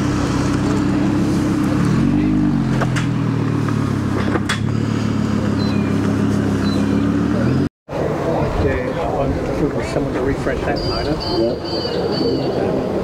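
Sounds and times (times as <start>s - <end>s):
sports car engine at low revs: 0.0s - 8.6s.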